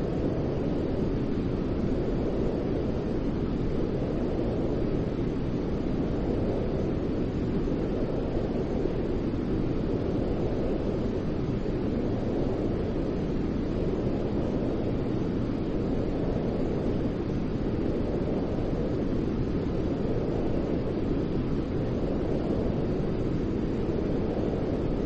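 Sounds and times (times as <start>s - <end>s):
deep white noise: 0.0s - 25.0s.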